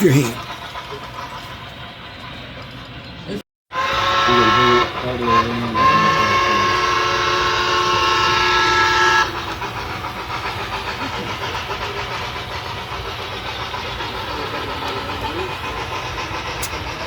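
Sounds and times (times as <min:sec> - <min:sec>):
model train chime whistle: 0:03.8 - 0:09.2
steam locomotive chuffing: 0:03.8 - 0:17.0.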